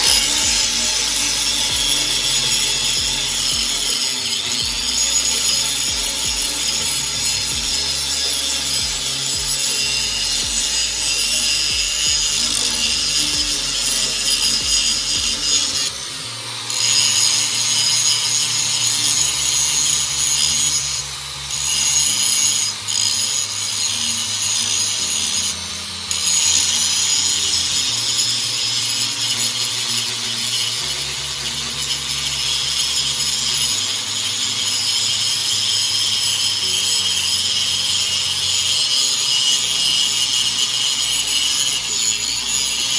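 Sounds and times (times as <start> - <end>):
angle grinder grinding metal blade: 0.0 - 42.9.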